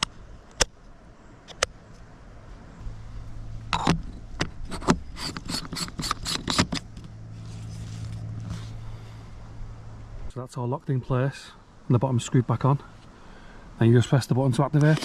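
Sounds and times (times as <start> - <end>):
metal parts clicking and scraping: 3.7 - 7.1.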